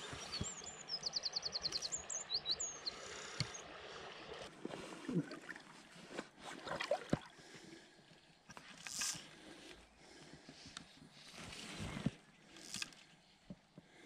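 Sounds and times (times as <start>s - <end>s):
small songbird singing: 0.0s - 3.6s
fishing rod and line handling: 8.4s - 13.8s.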